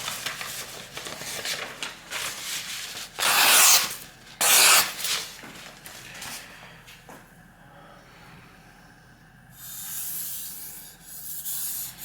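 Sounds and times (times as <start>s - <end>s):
knife scraping slicing passes: 3.2s - 5.0s.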